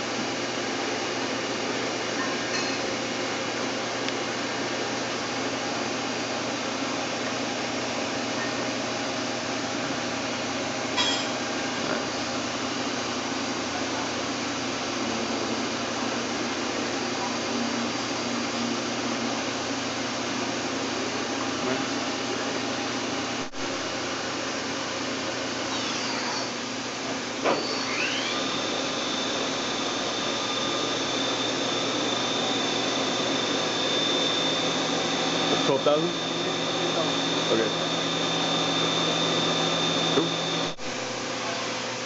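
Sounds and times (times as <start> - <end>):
machining center running: 25.1 - 42.0.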